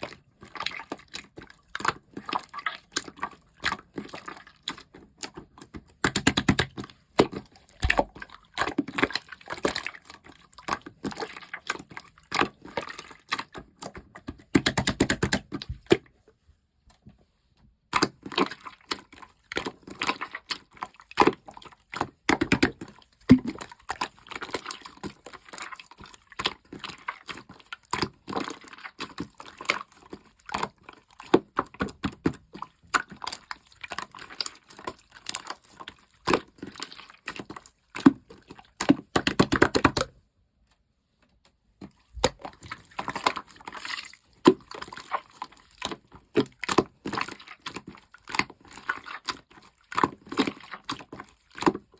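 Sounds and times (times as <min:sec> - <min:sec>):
slime squished by hand: 0:00.2 - 0:16.1.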